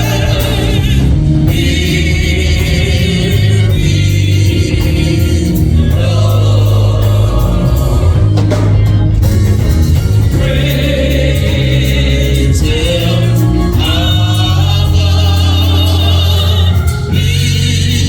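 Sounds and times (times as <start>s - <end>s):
choir and congregation singing a hymn: 0.0s - 18.0s
organ chords: 0.0s - 18.0s.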